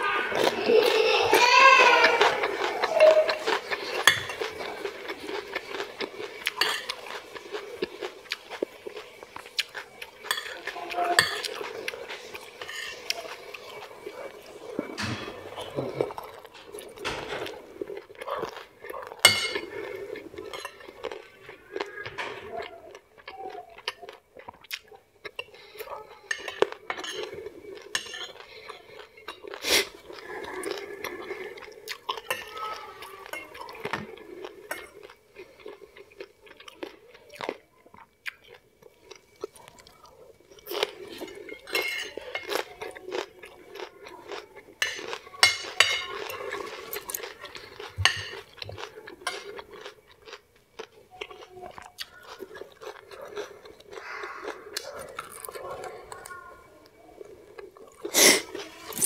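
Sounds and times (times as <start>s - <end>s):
person chewing: 0.0s - 59.0s
cutlery scraping on ceramic plate: 2.1s - 4.7s, 6.5s - 7.2s, 10.2s - 13.8s, 19.2s - 19.8s, 26.3s - 28.4s, 41.1s - 42.6s, 44.8s - 47.2s, 48.0s - 48.6s.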